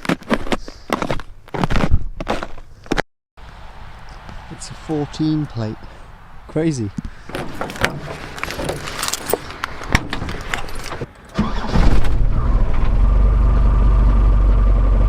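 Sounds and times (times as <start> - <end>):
van engine starting and idling: 7.3 - 15.0
keys clicking and rattling: 7.7 - 11.1.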